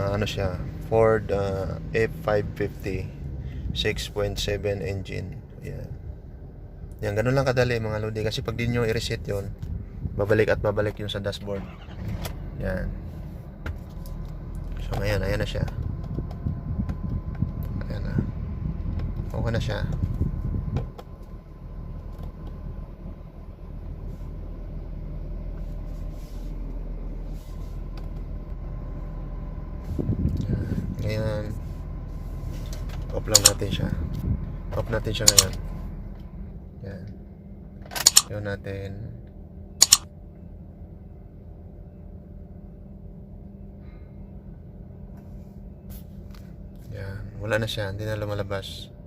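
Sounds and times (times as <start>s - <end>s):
diesel engine idling: 0.0s - 38.3s
low hum inside truck cab: 0.0s - 49.0s.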